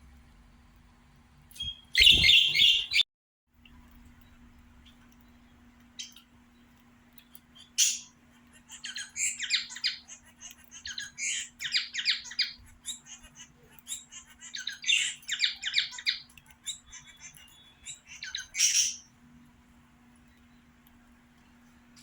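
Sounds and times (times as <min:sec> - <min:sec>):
faint low hum: 0:00.0 - 0:22.0
budgerigar chirping and squawking: 0:02.0 - 0:03.0, 0:07.6 - 0:19.1.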